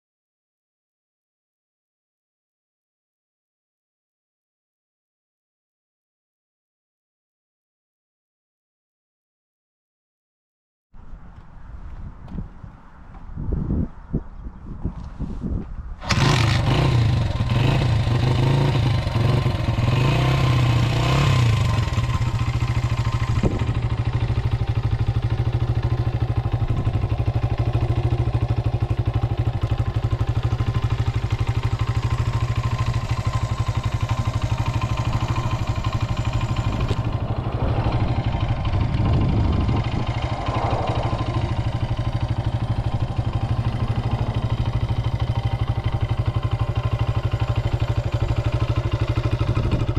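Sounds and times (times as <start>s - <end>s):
small engine idling: 16.0s - 49.9s.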